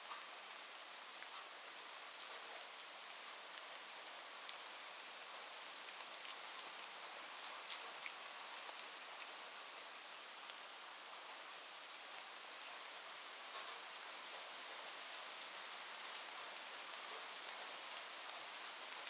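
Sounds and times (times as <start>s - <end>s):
steady rain hiss: 0.0s - 19.0s
raindrop ticks: 13.4s - 14.5s.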